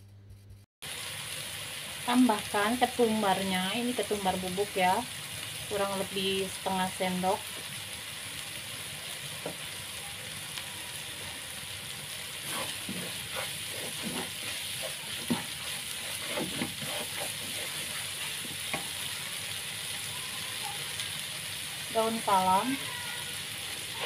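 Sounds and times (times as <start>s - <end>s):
spice paste sizzling in a pan: 0.8s - 24.0s
scrapes and knocks against pan: 12.5s - 15.6s.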